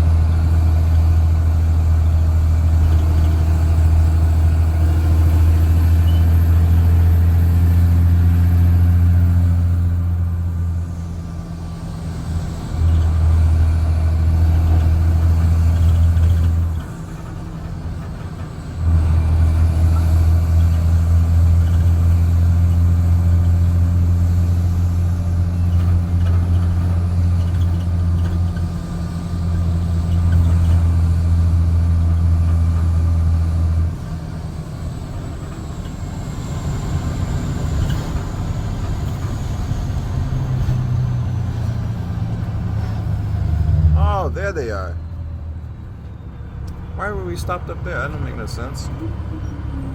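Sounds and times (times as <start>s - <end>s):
diesel bus exhaust drone: 0.0s - 49.9s.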